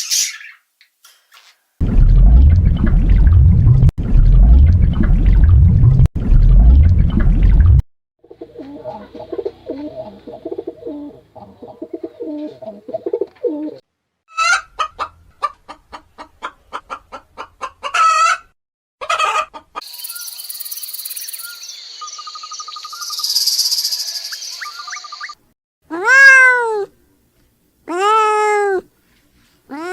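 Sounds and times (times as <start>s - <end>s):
chickens clucking: 8.3s - 13.5s, 14.8s - 18.3s
chicken squawks: 14.3s - 15.1s, 17.6s - 19.6s
high shrill insect chirring: 19.9s - 25.4s.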